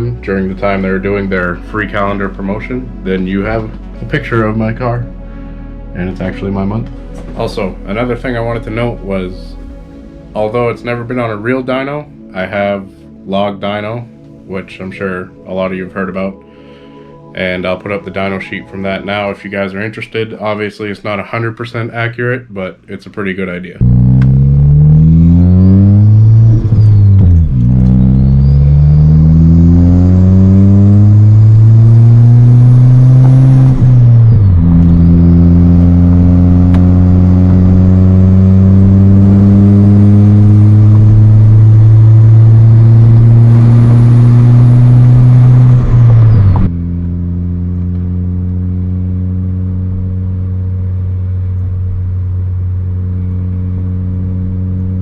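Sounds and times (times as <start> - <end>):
car engine accelerating: 0.0 - 14.3, 23.8 - 55.0
turbo whine: 23.8 - 55.0.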